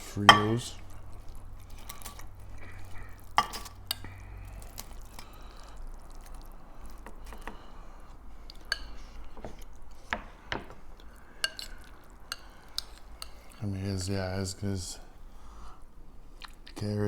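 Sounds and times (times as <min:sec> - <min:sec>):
wet squishing of food: 0:00.0 - 0:14.4, 0:15.2 - 0:17.0
spoon clinking against bowl: 0:00.2 - 0:00.9, 0:02.9 - 0:04.1.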